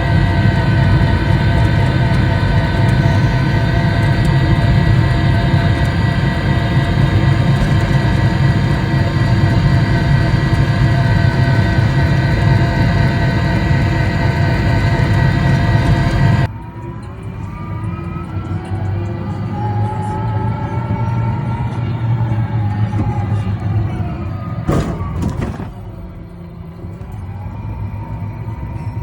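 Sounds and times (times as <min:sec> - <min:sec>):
toy car motor whine: 0:00.0 - 0:16.4
wheels rumbling on pavement: 0:00.0 - 0:29.0.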